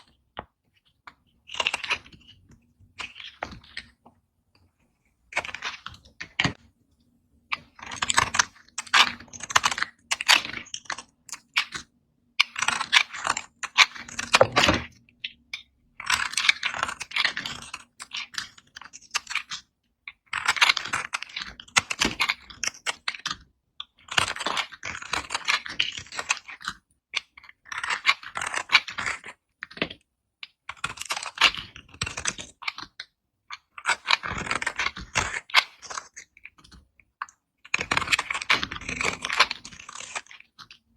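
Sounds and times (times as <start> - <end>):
knife scraping dry soap: 12.4 - 40.9.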